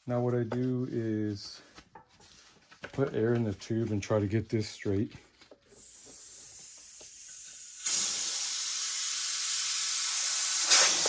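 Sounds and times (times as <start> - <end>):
compressed air hissing into tube: 5.7 - 11.0.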